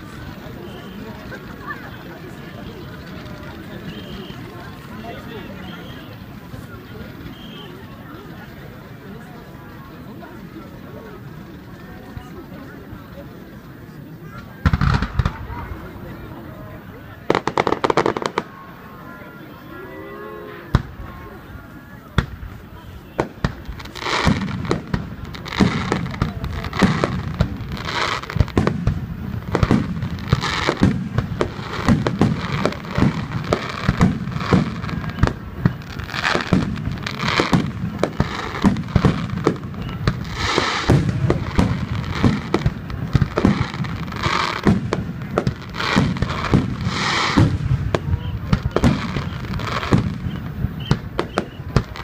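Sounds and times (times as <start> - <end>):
fireworks crackling: 0.0 - 52.0
fireworks booming: 14.2 - 18.9, 20.6 - 52.0.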